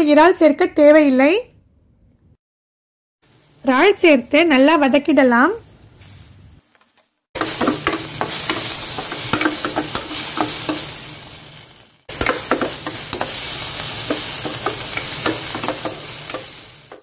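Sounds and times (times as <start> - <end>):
prawns sizzling in hot oil: 3.2 - 6.7, 7.4 - 17.0.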